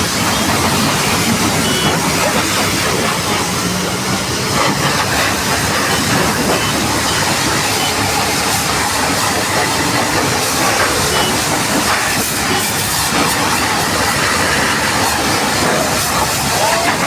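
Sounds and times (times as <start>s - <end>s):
pressure washer water spray hissing: 0.0s - 17.0s.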